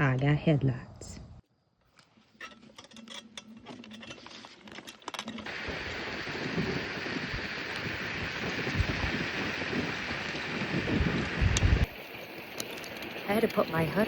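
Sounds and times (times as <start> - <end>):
wind noise on microphone: 5.4 - 12.0.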